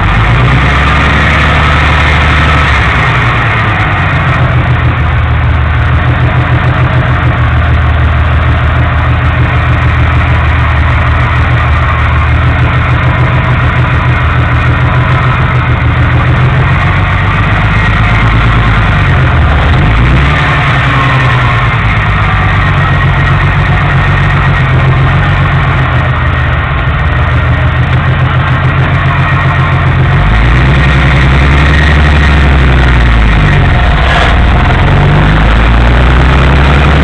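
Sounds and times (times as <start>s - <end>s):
car engine running: 0.0s - 37.0s.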